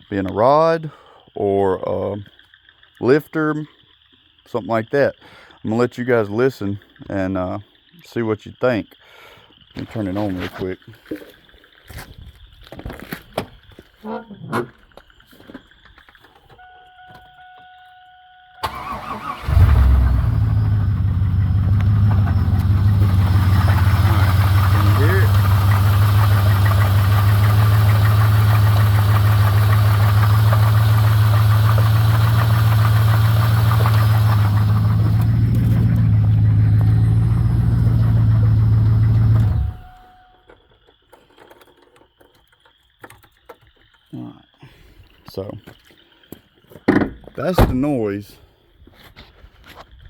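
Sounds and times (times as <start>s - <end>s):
faint steady tone: 16.4s - 18.7s, 34.8s - 42.0s
car engine cranking and idling: 18.6s - 40.5s
engine knocking: 20.6s - 39.8s.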